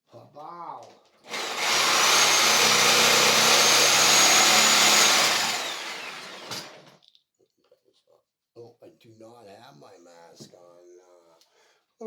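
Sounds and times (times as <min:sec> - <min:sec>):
power tool whining: 0:01.3 - 0:07.0.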